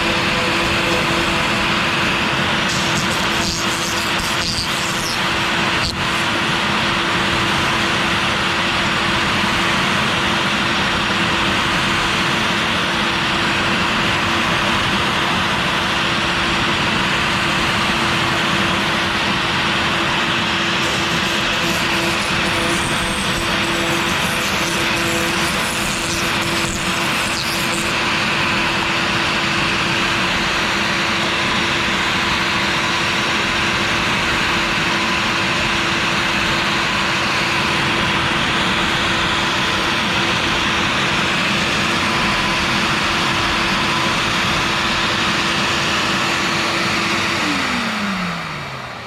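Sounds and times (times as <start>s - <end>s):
router bit cutting plastic: 0.0s - 7.2s, 20.2s - 30.3s
router spindle high whine: 0.0s - 49.0s.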